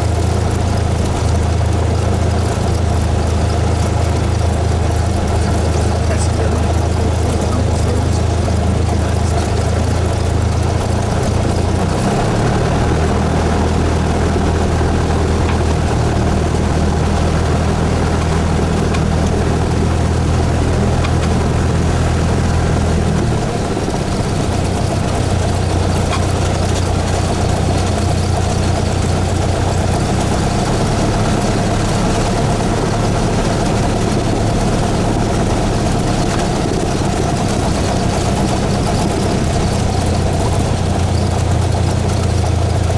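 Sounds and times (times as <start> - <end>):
small plane engine and propeller: 0.0 - 42.9.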